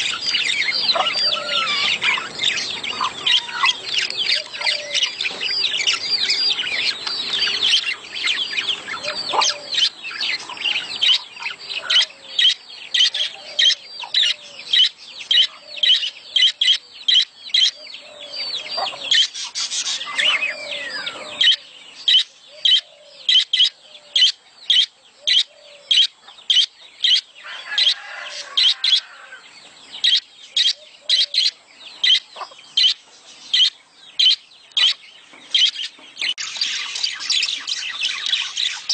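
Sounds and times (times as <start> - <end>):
budgerigars chattering: 0.0 - 29.2, 30.0 - 38.9.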